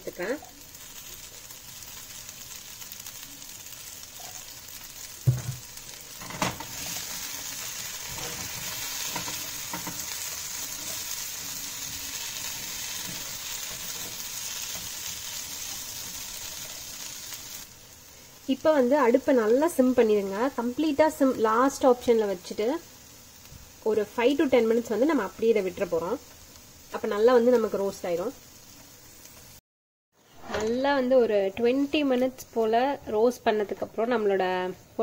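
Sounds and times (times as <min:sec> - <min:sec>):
potatoes sizzling in oil: 0:00.0 - 0:29.6, 0:30.3 - 0:35.0
knock: 0:05.3 - 0:05.6.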